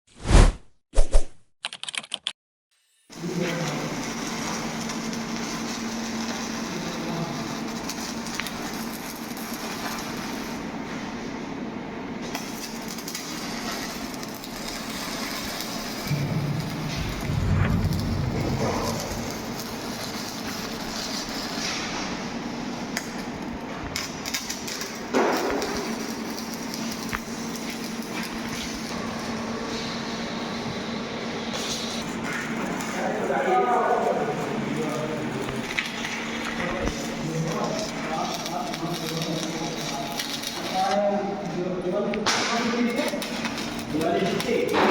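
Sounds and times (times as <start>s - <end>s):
arc welding hiss with crackles: 2.8s - 44.9s.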